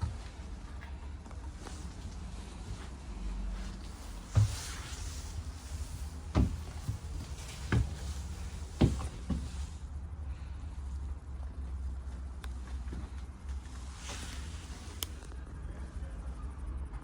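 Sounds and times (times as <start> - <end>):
bus engine rumbling: 0.0 - 16.9
sharp knocks and rattles: 6.3 - 9.6.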